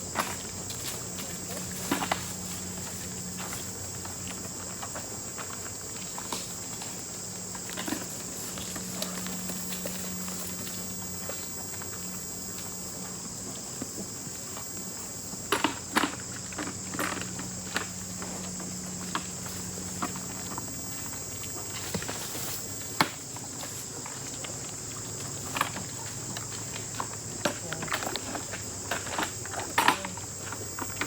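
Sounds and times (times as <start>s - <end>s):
insects chirping: 0.0s - 31.0s
footsteps: 17.8s - 23.0s.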